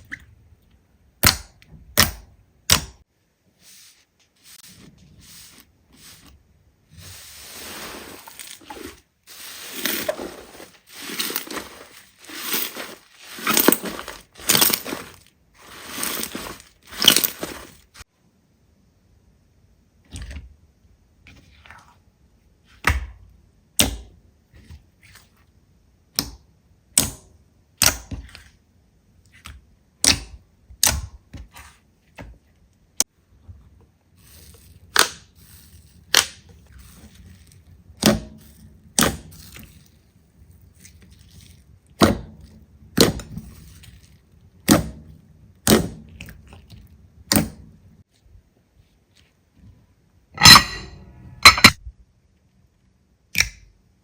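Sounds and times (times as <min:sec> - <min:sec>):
soft handling noise: 0:03.5 - 0:18.0, 0:48.0 - 0:51.8.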